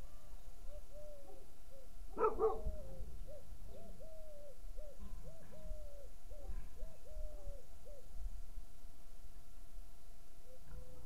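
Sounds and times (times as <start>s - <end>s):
bird hooting: 0.0s - 8.1s, 10.4s - 11.0s.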